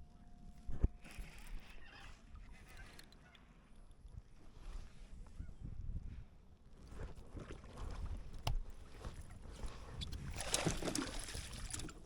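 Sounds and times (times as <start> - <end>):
water against kayak hull: 6.7 - 12.0
water splashing: 10.3 - 12.0.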